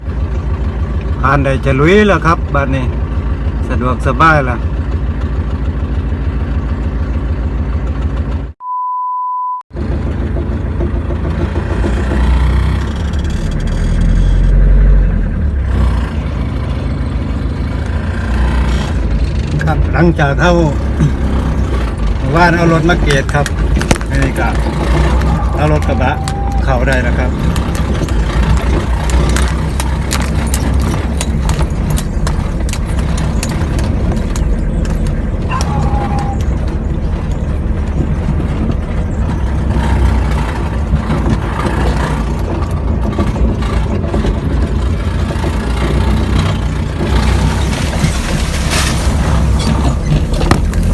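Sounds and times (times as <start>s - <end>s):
vehicle engine running: 0.0s - 8.6s, 9.7s - 50.9s
high beep: 8.6s - 9.6s
truck knocks and rattles: 9.8s - 50.9s.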